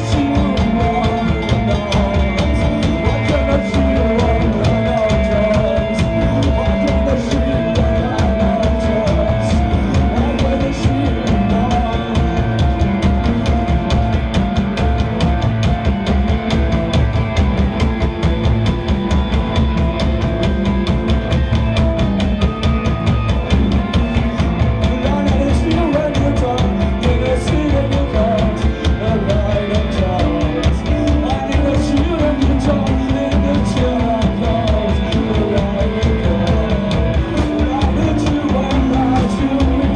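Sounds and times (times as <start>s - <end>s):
bass and electric guitars: 0.0s - 39.9s
drum kit beat: 0.0s - 39.9s.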